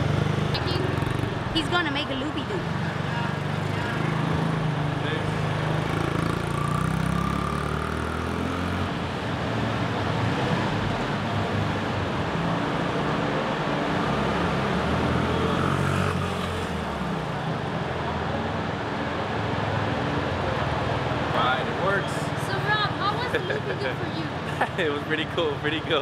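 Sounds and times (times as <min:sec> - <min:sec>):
minibike engine revving: 0:00.0 - 0:09.2.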